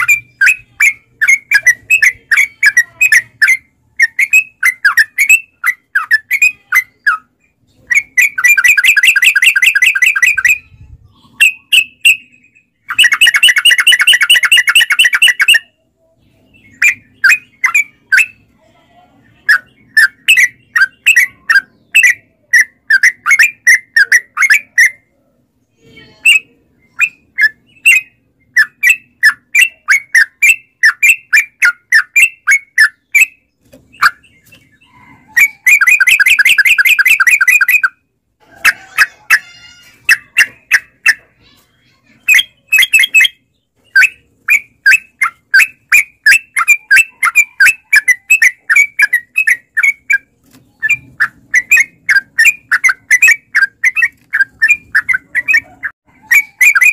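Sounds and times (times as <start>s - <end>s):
bird song with trills: 0.0s - 56.9s.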